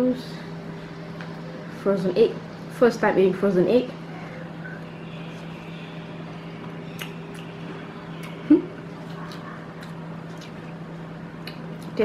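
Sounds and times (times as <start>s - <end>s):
steady low hum: 0.0s - 12.0s
person chewing food: 6.6s - 12.0s.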